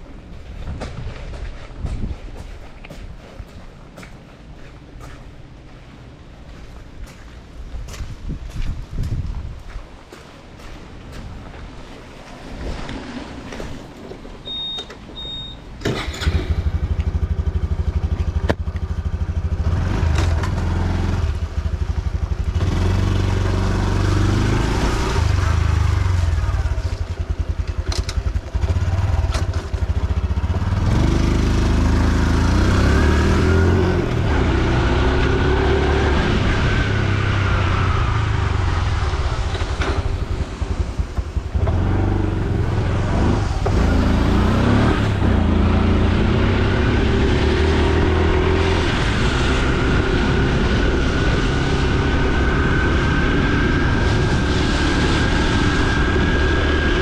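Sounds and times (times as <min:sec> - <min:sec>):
wind and road noise: 0:00.0 - 0:57.0
motorcycle engine accelerating: 0:16.0 - 0:57.0.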